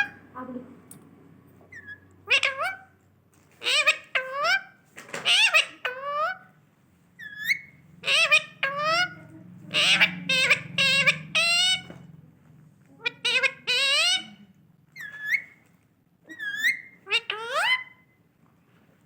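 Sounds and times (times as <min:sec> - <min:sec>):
parrot squawking: 0:00.0 - 0:00.3, 0:01.7 - 0:03.0, 0:03.6 - 0:06.5, 0:07.2 - 0:12.0, 0:13.0 - 0:15.6, 0:16.2 - 0:18.2.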